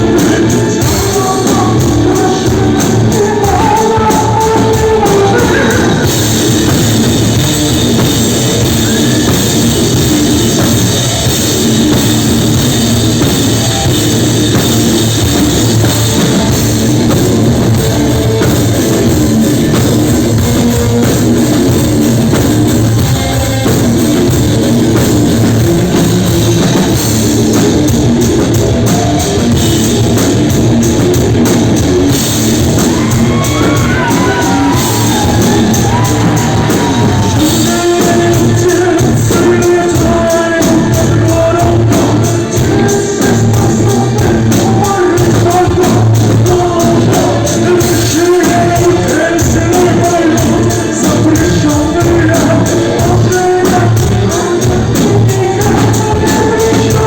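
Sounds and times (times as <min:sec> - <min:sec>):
drum kit: 0:00.0 - 0:57.0
guitar: 0:00.0 - 0:57.0
live rock band playing: 0:00.0 - 0:57.0.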